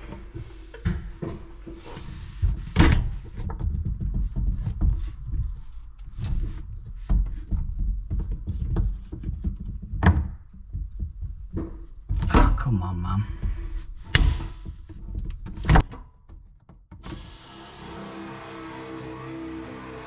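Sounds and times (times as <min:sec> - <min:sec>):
plastic pipe knocks and clatter: 0:00.0 - 0:12.5, 0:13.5 - 0:17.0.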